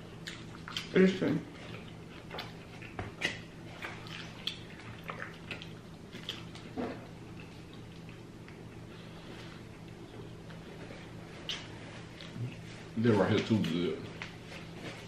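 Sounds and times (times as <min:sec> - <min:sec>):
faint low hum: 0:00.0 - 0:15.0
wet chewing and lip smacks: 0:00.1 - 0:08.9, 0:11.4 - 0:12.6.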